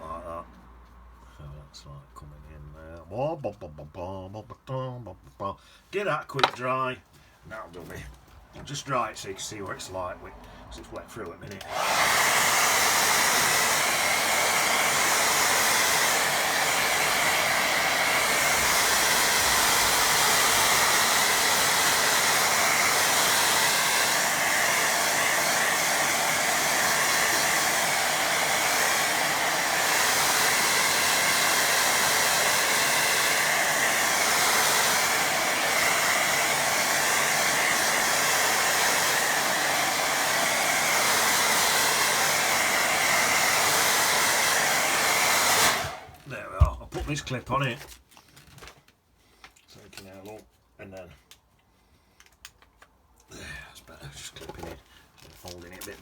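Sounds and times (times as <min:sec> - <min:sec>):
hair dryer blowing: 0:11.5 - 0:47.2.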